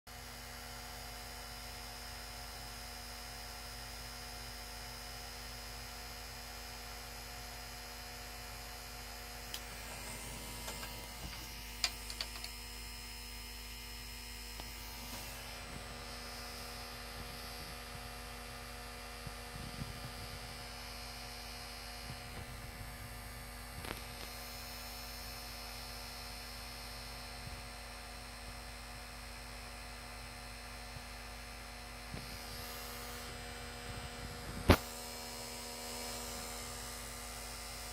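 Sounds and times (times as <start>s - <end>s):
game console buzzing: 8.1s - 25.8s, 32.1s - 37.9s
short clicks and knocks: 9.6s - 12.6s.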